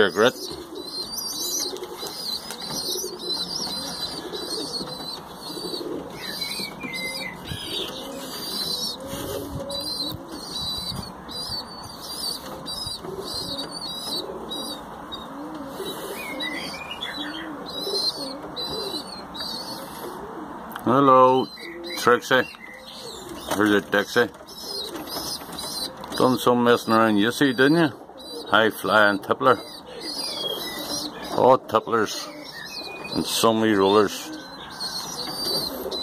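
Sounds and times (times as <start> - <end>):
pigeons cooing: 0.0 - 36.0
high-pitched chirping: 1.0 - 15.3
wings flapping: 24.4 - 26.2.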